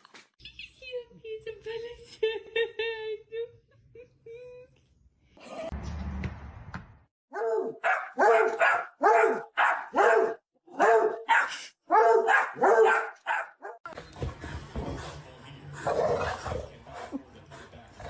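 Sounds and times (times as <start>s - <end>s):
dog barking: 7.3s - 13.8s.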